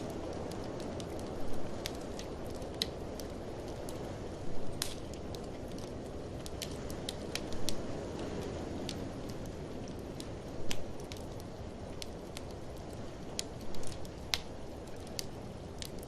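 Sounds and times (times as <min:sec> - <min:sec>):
blizzard wind rushing: 0:00.0 - 0:16.0
wood fire crackling and popping: 0:00.0 - 0:16.0.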